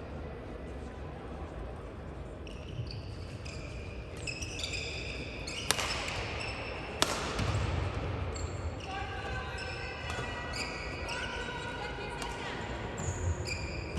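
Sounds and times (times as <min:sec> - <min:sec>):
low hall hum: 0:00.0 - 0:13.9
shoes squeaking on court floor: 0:02.4 - 0:07.6, 0:08.3 - 0:11.6, 0:12.9 - 0:13.9
racket hitting shuttlecock: 0:05.6 - 0:07.9.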